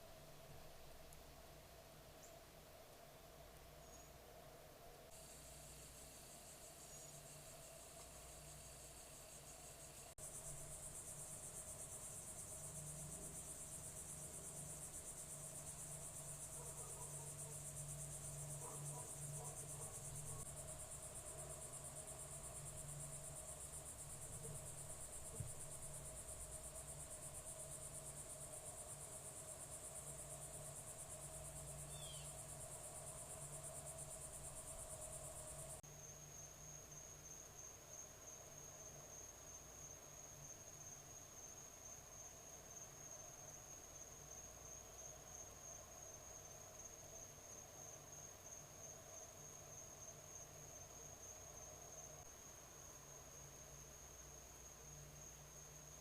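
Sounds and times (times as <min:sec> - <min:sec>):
faint low hum: 0:00.0 - 0:41.4
crickets chirping: 0:00.0 - 0:56.0.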